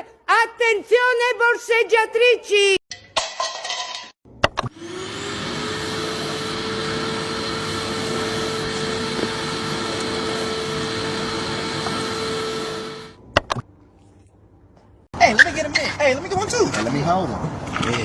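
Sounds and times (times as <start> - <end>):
electric motor whining and rushing: 4.7 - 13.2.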